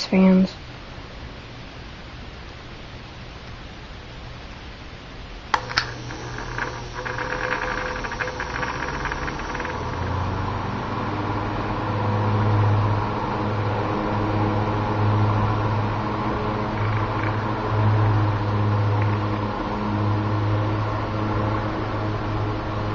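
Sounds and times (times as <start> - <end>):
fast ticking: 5.6 - 10.4
fan motor hum and blade whoosh: 5.6 - 22.9.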